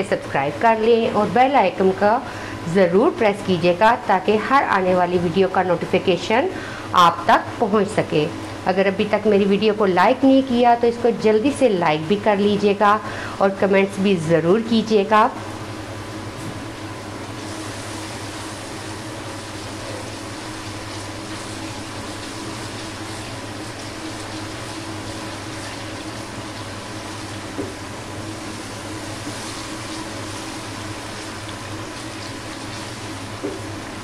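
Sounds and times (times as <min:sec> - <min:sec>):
paste sizzling in hot oil: 0:17.3 - 0:34.0.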